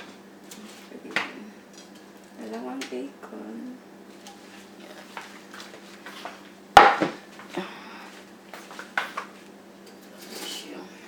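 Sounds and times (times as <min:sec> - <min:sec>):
dishes clattering: 0:06.1 - 0:07.3.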